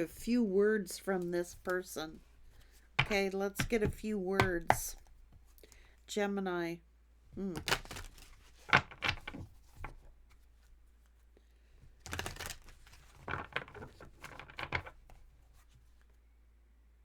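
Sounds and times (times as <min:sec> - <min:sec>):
cards being shuffled: 0:07.4 - 0:10.7, 0:11.9 - 0:16.1.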